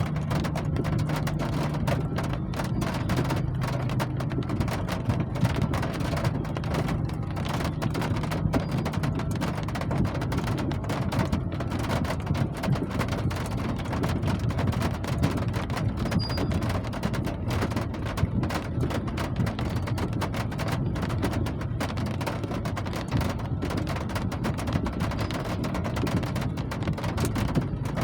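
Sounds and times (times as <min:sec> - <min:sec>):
rain drops striking: 0:00.0 - 0:28.0.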